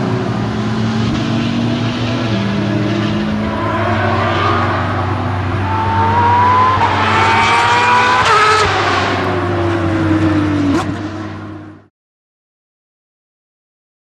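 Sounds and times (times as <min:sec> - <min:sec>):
race car engine accelerating: 0:00.0 - 0:11.9
steady low drone: 0:01.3 - 0:10.6.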